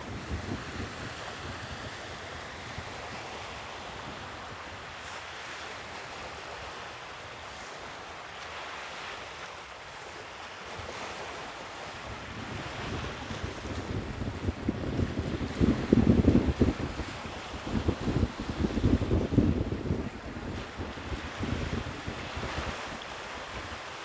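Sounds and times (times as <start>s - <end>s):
wind rumbling on microphone: 0.0s - 5.1s, 11.9s - 24.0s
sea waves washing onto shore: 0.0s - 24.0s.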